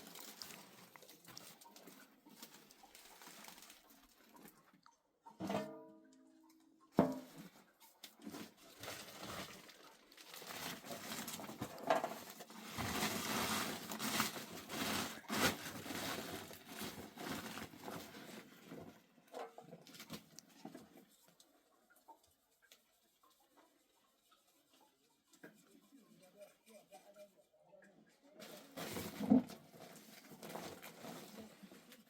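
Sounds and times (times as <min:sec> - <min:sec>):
rustling and crackling: 0:00.0 - 0:05.7, 0:07.0 - 0:26.8, 0:28.4 - 0:32.0.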